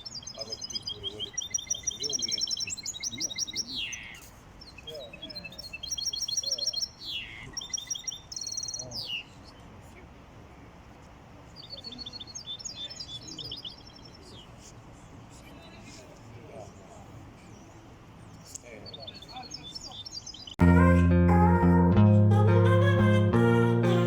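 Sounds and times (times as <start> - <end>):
goldfinch singing: 0.0 - 9.6, 11.6 - 14.4.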